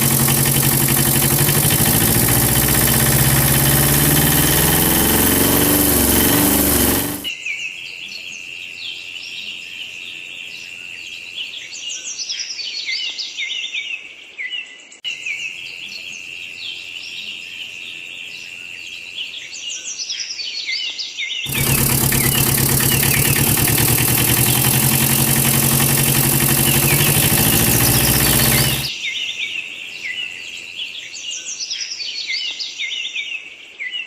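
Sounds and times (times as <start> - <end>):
tractor engine running: 0.0 - 7.3, 21.5 - 28.9
steady high whine: 21.5 - 28.9.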